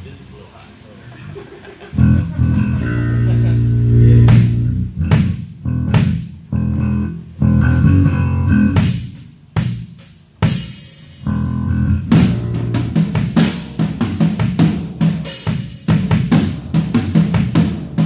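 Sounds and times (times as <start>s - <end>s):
bass guitar: 1.0s - 18.0s
guitar notes: 1.9s - 9.1s, 11.2s - 13.1s
drum kit hits: 2.0s - 18.0s.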